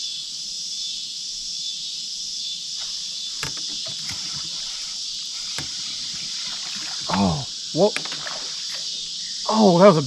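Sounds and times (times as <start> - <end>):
insects shrilling: 0.0 - 10.0
knocks and clicks: 2.8 - 4.9, 7.9 - 8.9.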